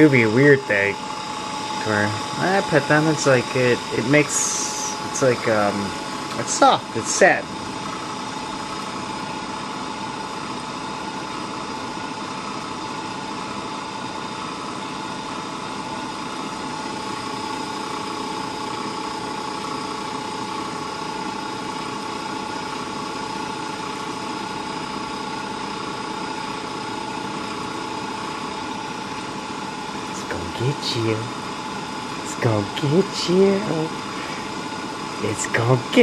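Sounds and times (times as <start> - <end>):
electric motor humming: 0.0 - 12.8, 22.6 - 36.0.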